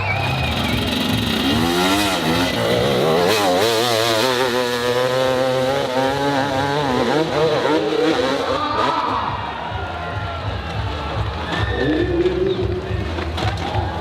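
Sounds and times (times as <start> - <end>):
dirt bike engine revving hard: 0.1 - 9.3.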